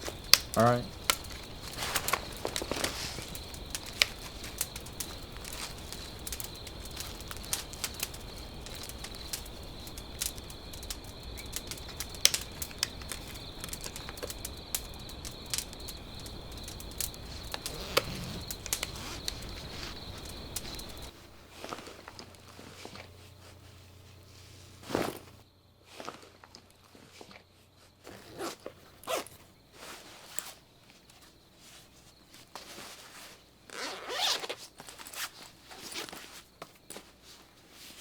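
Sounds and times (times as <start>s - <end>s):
sharp crackles and clicks: 0.0s - 23.1s
background noise: 0.0s - 38.0s.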